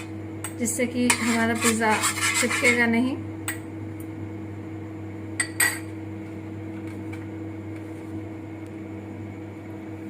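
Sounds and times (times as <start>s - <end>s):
microwave oven humming: 0.0s - 10.0s.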